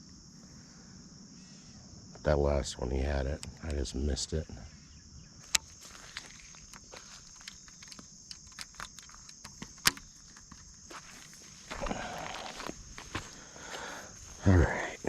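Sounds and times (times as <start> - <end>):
high-pitched insect chorus: 0.0 - 15.0
small clicks and taps: 5.5 - 10.7.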